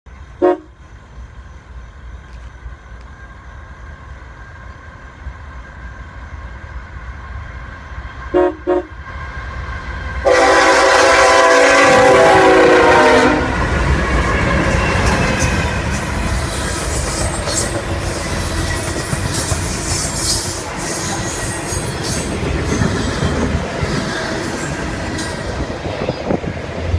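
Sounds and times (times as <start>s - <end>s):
freight train rumbling: 0.1s - 26.9s
wheels rushing on rail: 0.1s - 26.9s
locomotive air horn blast: 0.4s - 0.7s, 8.3s - 9.0s, 10.2s - 13.6s
car horn toots: 10.3s - 13.5s.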